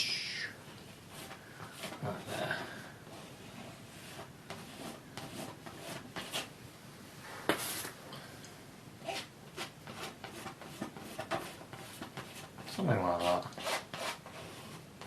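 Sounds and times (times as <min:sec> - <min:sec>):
palette knife scraping paint: 0:03.1 - 0:06.5, 0:09.0 - 0:14.9.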